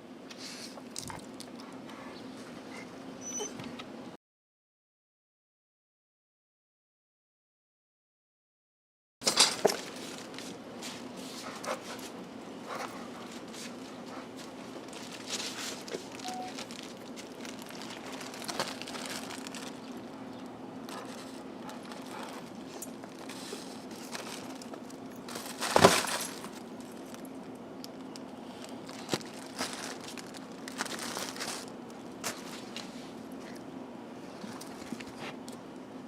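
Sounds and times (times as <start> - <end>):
bubble wrap crinkling: 13.6 - 32.9
bubble wrap popping: 15.0 - 20.0, 25.3 - 26.6, 28.9 - 32.4.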